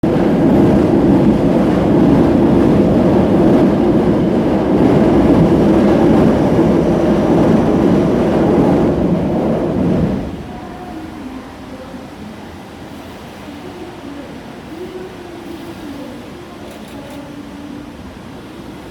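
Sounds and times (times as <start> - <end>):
train wheels rumbling on rails: 0.0 - 11.3.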